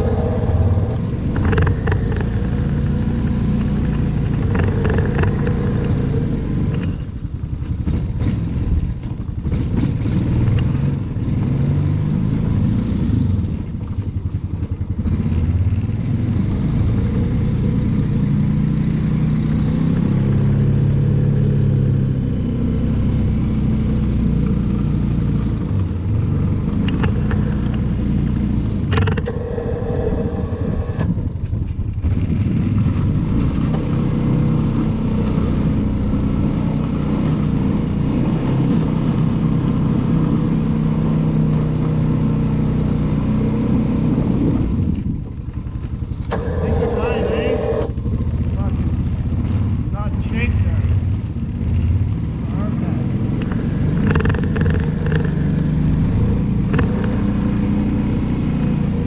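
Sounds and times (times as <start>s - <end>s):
snow clearing machine engine revving: 0.0s - 6.8s, 26.5s - 31.5s, 46.2s - 50.7s.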